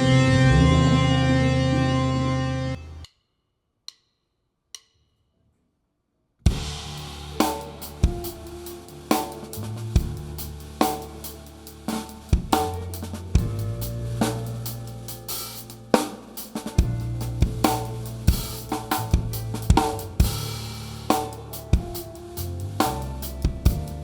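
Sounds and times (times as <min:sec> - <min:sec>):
rock band playing: 0:00.0 - 0:03.0, 0:06.5 - 0:24.0
drum kit hits and cymbals: 0:06.5 - 0:24.0.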